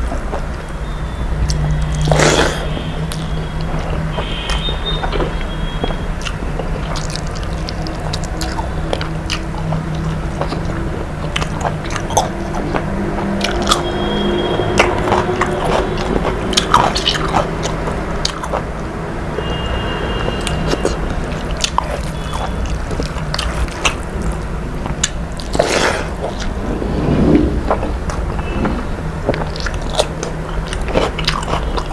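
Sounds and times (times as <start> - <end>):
person chewing food: 1.4 - 26.7, 27.5 - 31.9
low hum: 26.1 - 29.6.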